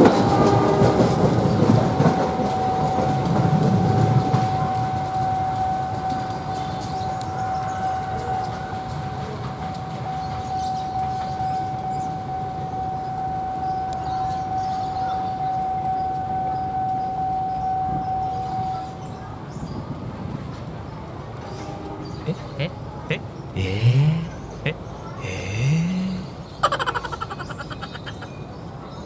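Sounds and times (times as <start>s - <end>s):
passing train rumbling: 0.0s - 13.9s
steady high-pitched tone: 23.6s - 24.5s, 25.2s - 28.3s.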